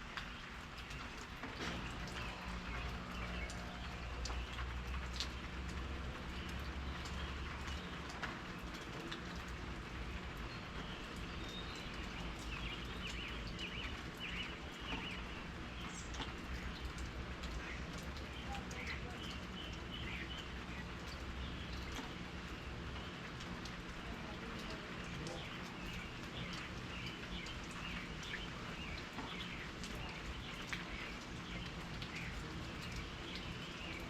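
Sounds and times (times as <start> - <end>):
rain falling: 0.0 - 34.0
bird chirping: 10.5 - 16.9.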